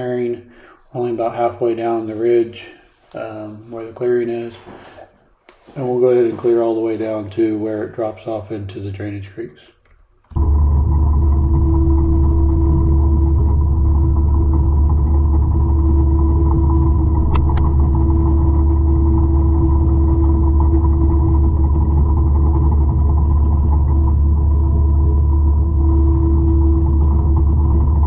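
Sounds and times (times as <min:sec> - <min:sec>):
mulcher diesel drone with whine: 0:10.4 - 0:28.0.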